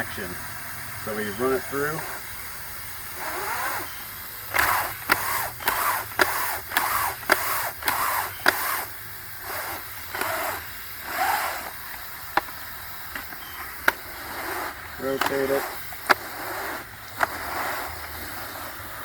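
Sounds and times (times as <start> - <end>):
sharp clicks: 3.1 - 18.2
screen scrubbing strokes: 13.6 - 19.0.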